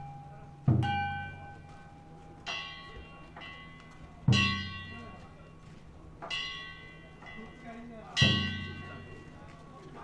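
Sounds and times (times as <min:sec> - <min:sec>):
hand gong ringing: 0:02.5 - 0:05.2.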